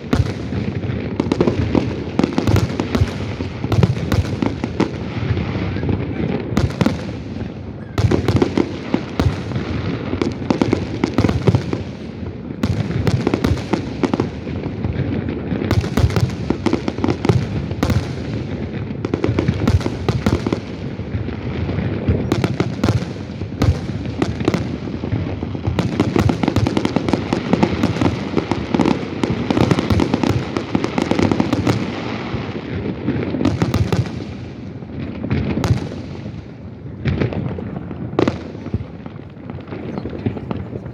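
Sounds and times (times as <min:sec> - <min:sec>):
fireworks shell bursts booming: 0:00.0 - 0:14.1
fireworks crackling: 0:00.0 - 0:40.9.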